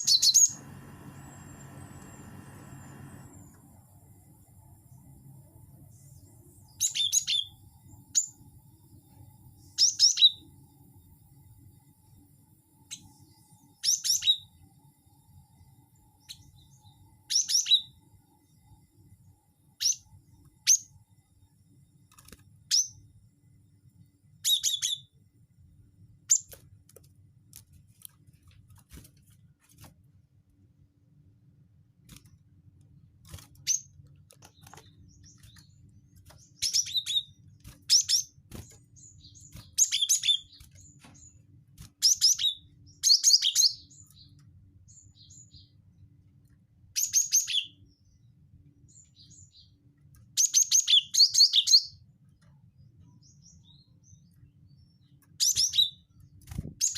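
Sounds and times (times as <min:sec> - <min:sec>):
bird chirping: 0:00.0 - 0:03.9, 0:04.7 - 0:10.6, 0:16.0 - 0:18.6, 0:24.4 - 0:25.2, 0:33.6 - 0:46.1, 0:47.0 - 0:52.1, 0:52.7 - 0:56.9
faint low hum: 0:00.0 - 0:56.9.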